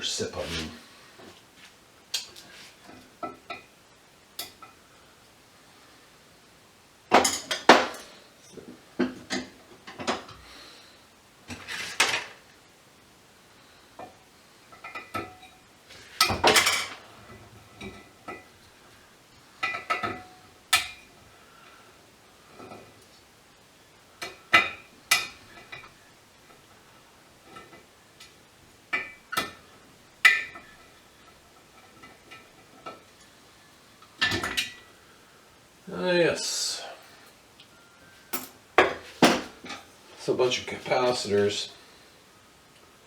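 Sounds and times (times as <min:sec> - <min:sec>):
hand tools clinking and clattering: 0:14.7 - 0:18.5.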